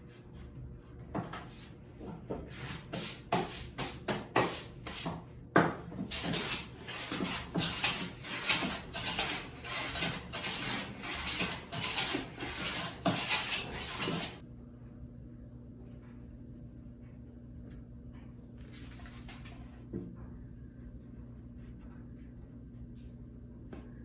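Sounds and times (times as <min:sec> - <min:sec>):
hand tool strokes on wood: 0:06.1 - 0:14.4.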